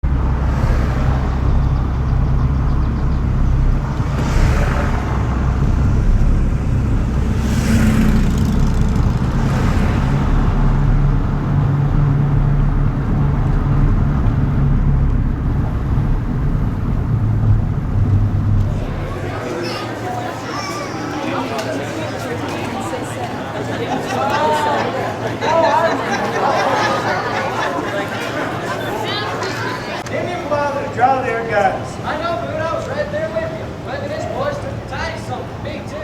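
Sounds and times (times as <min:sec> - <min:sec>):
rushing noise passing: 0:00.0 - 0:20.4
vehicle rumble: 0:00.0 - 0:21.0.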